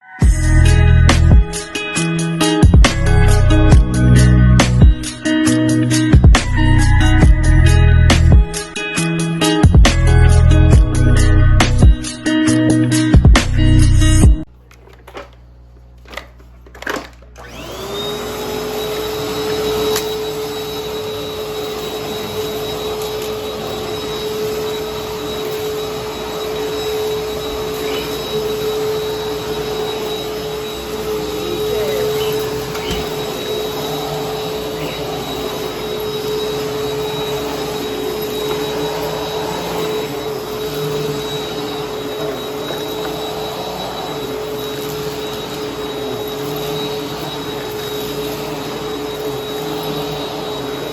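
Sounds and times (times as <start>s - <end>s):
vacuum cleaner motor: 0.0s - 50.9s.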